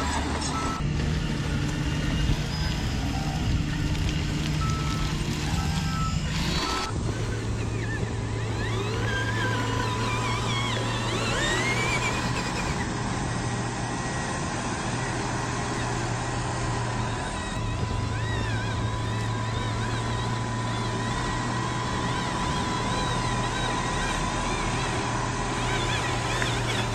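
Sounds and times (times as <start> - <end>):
reversing beeps: 0.0 - 0.8, 1.5 - 12.8
low engine-like hum: 0.0 - 26.9.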